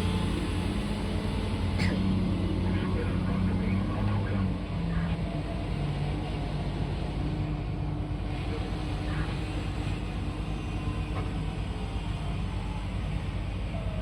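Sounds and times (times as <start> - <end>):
large diesel engines running: 0.0 - 14.0.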